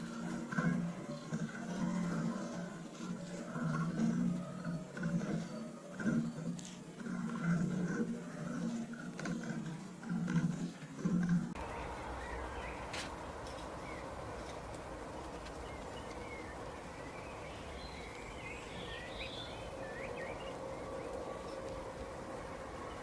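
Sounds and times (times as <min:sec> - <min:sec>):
faint hum: 0:11.6 - 0:23.0
small birds chirping: 0:11.6 - 0:23.0
steady background hiss: 0:11.6 - 0:23.0.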